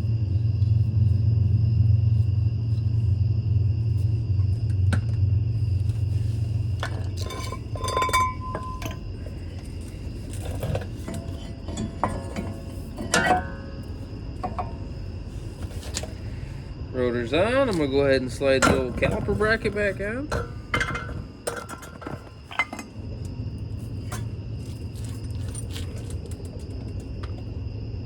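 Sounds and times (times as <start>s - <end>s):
metal clinks and clanks: 6.8s - 16.2s, 18.5s - 23.3s, 24.0s - 27.4s.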